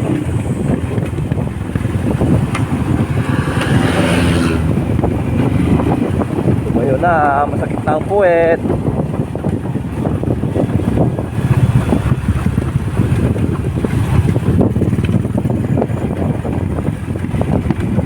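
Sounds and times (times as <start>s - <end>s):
motorcycle engine: 0.0s - 18.0s
wind rushing over microphone: 0.0s - 18.0s.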